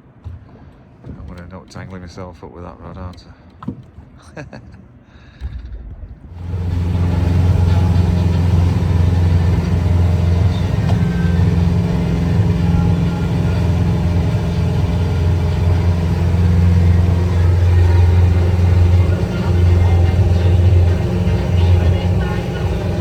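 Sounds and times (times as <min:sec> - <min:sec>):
boat engine droning: 0:06.4 - 0:23.0.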